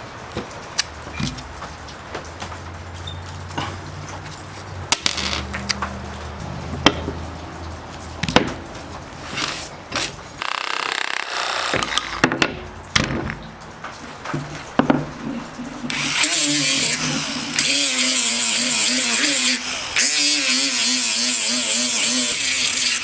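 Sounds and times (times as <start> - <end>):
tools clicking and knocking: 4.9 - 6.0, 9.3 - 17.8.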